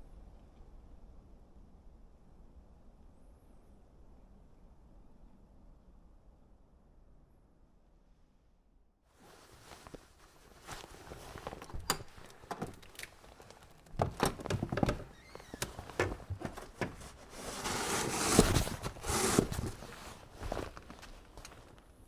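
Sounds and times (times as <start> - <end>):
footsteps crunching in snow: 9.2 - 11.7, 15.9 - 22.0.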